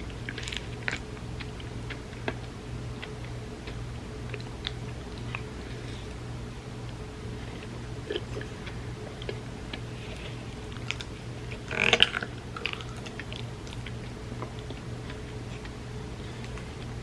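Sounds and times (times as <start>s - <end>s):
soft chewing and mouth clicks: 0.0s - 17.0s
steady low hum: 0.0s - 17.0s.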